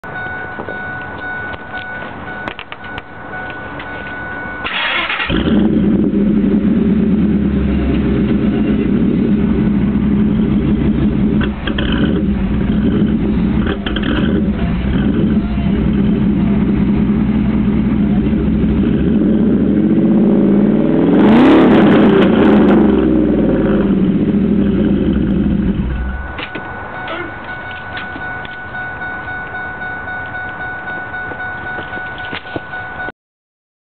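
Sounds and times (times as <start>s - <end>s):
pickup truck engine idling: 0.2s - 21.0s, 22.9s - 32.4s
engine starting up: 4.6s - 6.1s
engine revving: 4.6s - 26.4s
thin steady tone: 26.0s - 33.1s.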